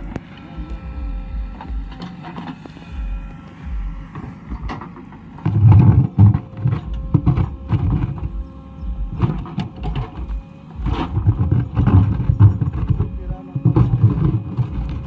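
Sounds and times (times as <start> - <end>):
diesel engine running: 0.0 - 15.0
digging gear knocks and clanks: 4.1 - 15.0.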